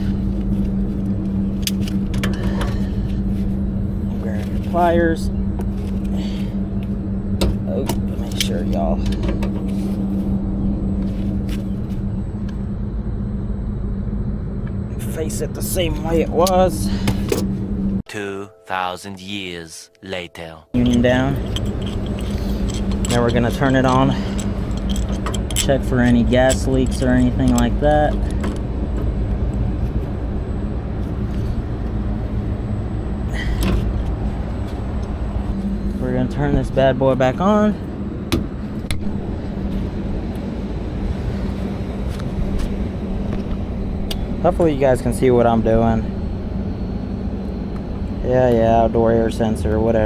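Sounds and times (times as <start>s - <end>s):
machinery humming: 0.0s - 18.0s, 20.7s - 50.0s
hand tools clicking: 20.8s - 28.6s.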